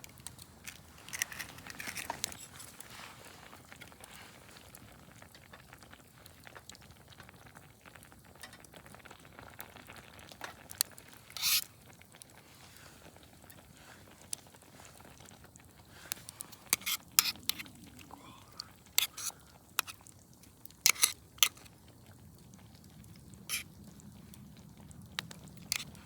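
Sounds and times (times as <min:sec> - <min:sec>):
rustle: 0:00.0 - 0:05.6, 0:09.6 - 0:21.9, 0:22.6 - 0:26.0
pot simmering with sizzle: 0:00.0 - 0:26.0.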